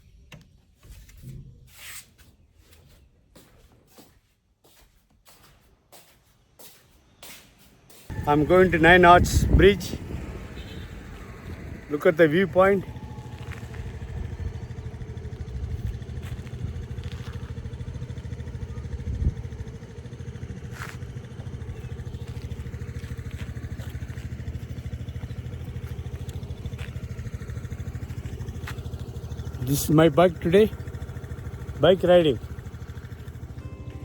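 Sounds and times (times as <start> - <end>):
motorcycle engine running: 8.1 - 34.0.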